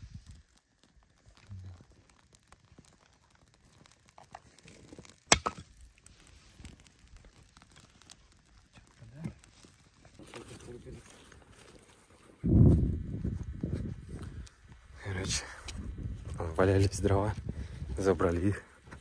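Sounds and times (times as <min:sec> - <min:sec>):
wood cracking: 0:00.0 - 0:12.0
firewood rustling and crinkling: 0:00.0 - 0:19.0.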